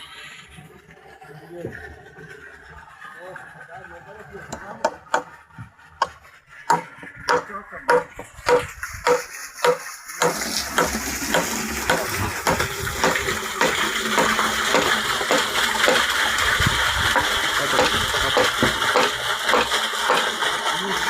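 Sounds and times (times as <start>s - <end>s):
running water rushing: 0.0s - 21.0s
regular knocks: 4.5s - 16.0s.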